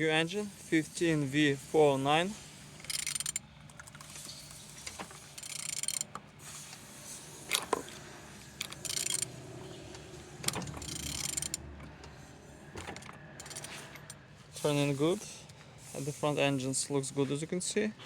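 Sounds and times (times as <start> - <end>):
engine clicking mechanically: 1.8 - 15.7
engine scraping: 4.0 - 17.4.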